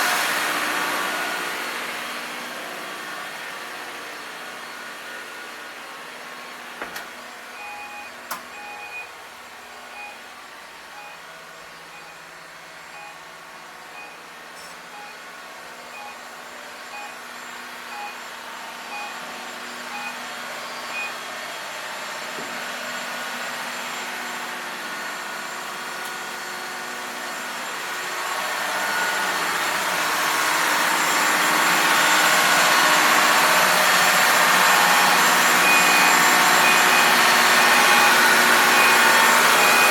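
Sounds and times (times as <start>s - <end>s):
engine room machinery hum: 0.0s - 39.9s
short electronic beeps: 7.6s - 9.1s, 9.7s - 10.3s, 10.9s - 13.3s, 13.9s - 15.3s, 15.9s - 17.2s, 17.9s - 18.2s, 18.9s - 19.2s, 19.9s - 21.2s, 34.6s - 39.9s.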